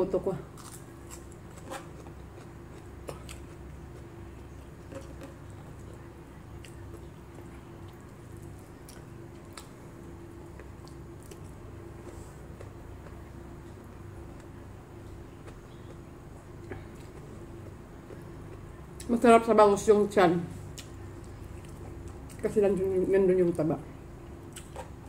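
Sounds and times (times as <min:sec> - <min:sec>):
steady low hum: 0:00.0 - 0:25.0
person chewing: 0:00.6 - 0:06.0, 0:06.6 - 0:09.8, 0:24.5 - 0:25.0.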